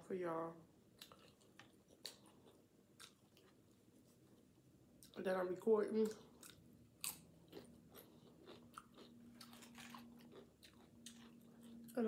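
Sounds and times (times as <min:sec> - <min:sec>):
crunching tortilla chips: 0:06.2 - 0:12.0.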